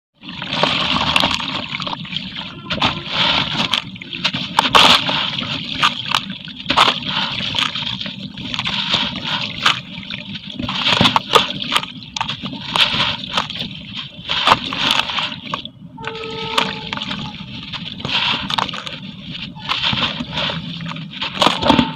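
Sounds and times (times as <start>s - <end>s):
steady tone: 15.8s - 17.8s.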